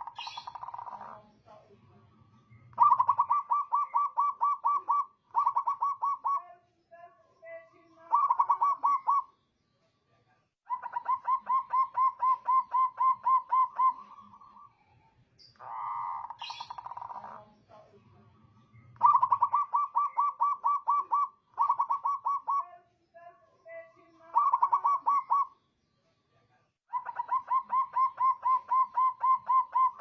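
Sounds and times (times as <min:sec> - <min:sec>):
dove cooing: 0:00.0 - 0:01.3, 0:02.7 - 0:06.4, 0:08.0 - 0:09.3, 0:10.7 - 0:14.7, 0:15.6 - 0:17.5, 0:19.0 - 0:22.6, 0:24.3 - 0:25.6, 0:26.9 - 0:30.0.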